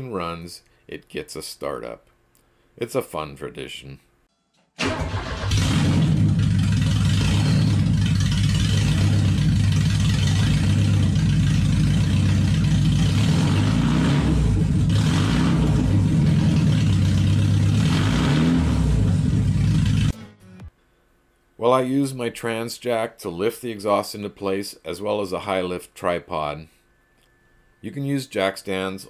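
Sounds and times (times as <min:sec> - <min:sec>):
unmuffled car engine running: 0:05.1 - 0:20.2.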